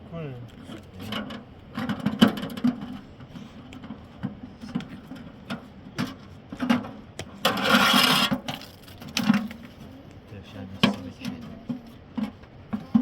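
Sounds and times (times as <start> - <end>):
knocks and clatter of hand work: 1.0 - 9.8, 10.8 - 13.0
rasping scrape: 7.4 - 8.8.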